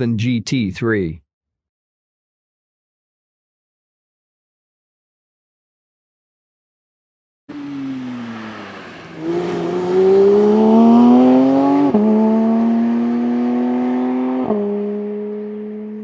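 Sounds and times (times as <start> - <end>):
car engine accelerating: 7.5 - 16.0.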